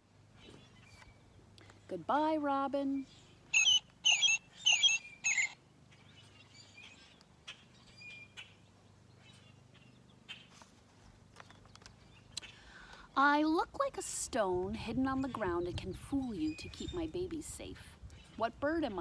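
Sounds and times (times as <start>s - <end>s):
robin warbled song: 0.4s - 10.5s, 14.9s - 17.5s
faint bird chirps: 3.0s - 10.5s.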